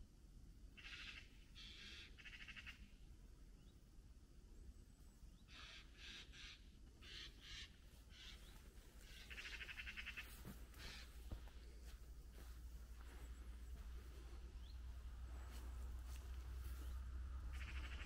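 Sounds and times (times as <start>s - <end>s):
harsh bird calls: 0.8s - 3.0s, 5.4s - 18.0s
rapid rattling bird call: 0.8s - 3.0s, 5.5s - 11.2s, 17.5s - 18.0s.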